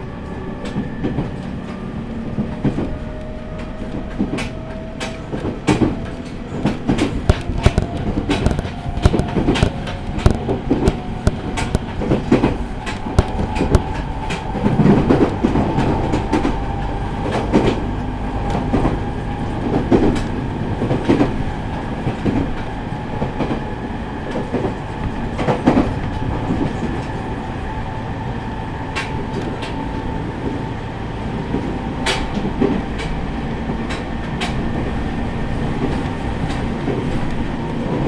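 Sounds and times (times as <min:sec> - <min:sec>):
train rumble: 0:00.0 - 0:38.0
wheels clicking over rail joints: 0:00.1 - 0:38.0.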